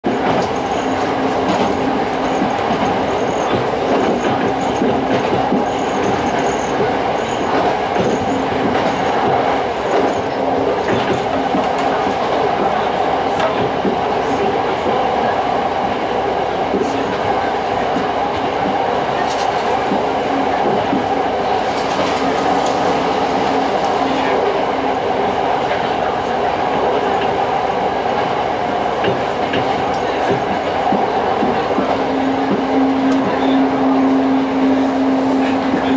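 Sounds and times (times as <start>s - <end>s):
wheels clicking: 0.0s - 12.8s
diesel railcar engine running: 0.0s - 35.9s.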